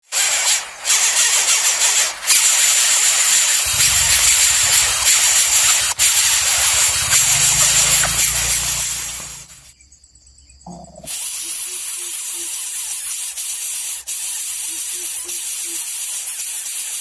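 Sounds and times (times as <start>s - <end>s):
loud high-pitched hiss: 0.0s - 9.7s, 11.1s - 17.0s
low hum: 3.6s - 9.7s.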